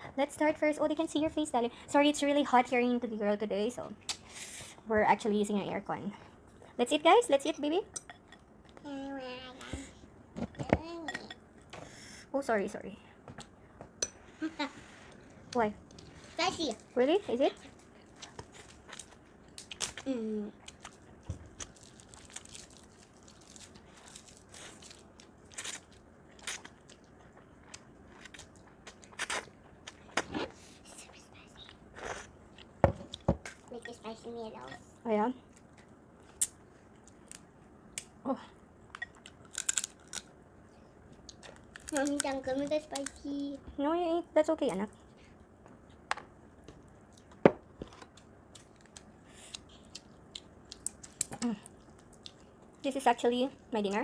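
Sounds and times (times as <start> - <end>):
people chewing with crunches: 17.6 - 33.7, 38.9 - 40.3, 41.1 - 43.2, 45.0 - 52.8
seafood shells cracking: 39.2 - 40.3, 41.4 - 42.3.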